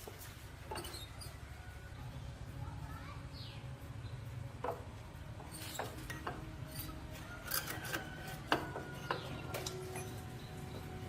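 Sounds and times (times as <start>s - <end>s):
low steady hum: 0.0s - 11.0s
hand tools clinking on metal: 5.5s - 10.9s.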